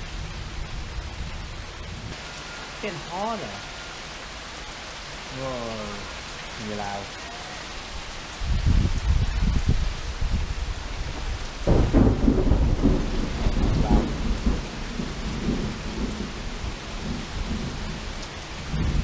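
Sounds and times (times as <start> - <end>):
heavy rain: 0.0 - 19.0
thunder rumbling: 8.4 - 19.0.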